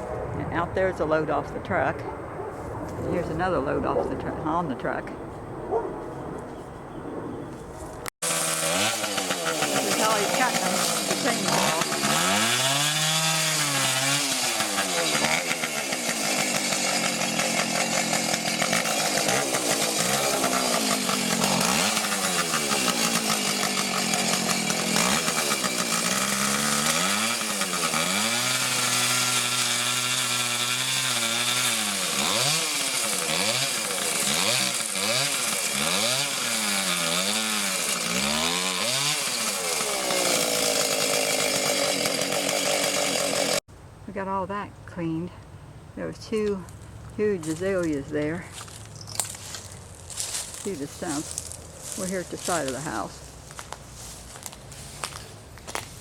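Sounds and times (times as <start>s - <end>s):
chainsaw revving and cutting: 8.2s - 43.7s, 47.2s - 55.9s.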